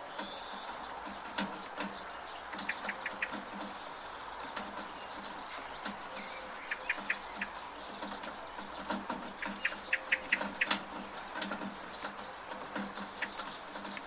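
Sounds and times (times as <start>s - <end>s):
bird chirping: 0.0s - 14.0s
steady rain: 0.0s - 14.0s
water dripping from a gutter: 0.0s - 14.0s.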